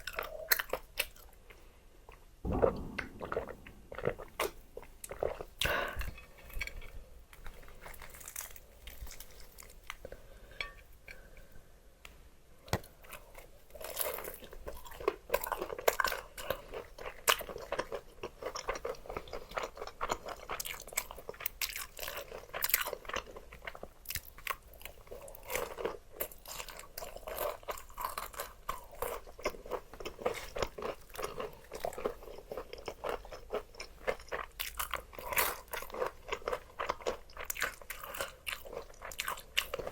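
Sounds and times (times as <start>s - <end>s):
chewing crispy fried chicken: 7.4s - 10.5s, 12.8s - 39.9s.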